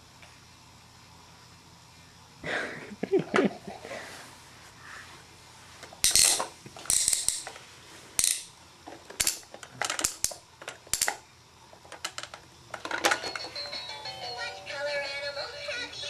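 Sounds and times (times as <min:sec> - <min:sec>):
plastic toy train rattling: 0:11.8 - 0:13.9.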